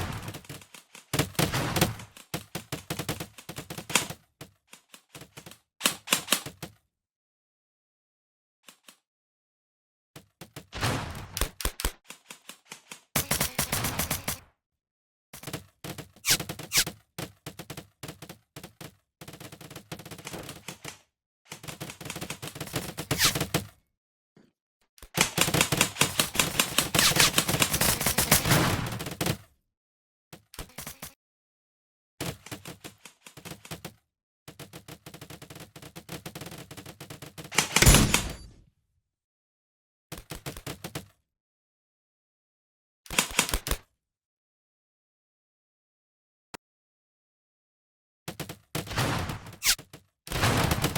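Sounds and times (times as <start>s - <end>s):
airsoft gun firing bursts: 13.2s - 14.4s, 25.2s - 29.2s.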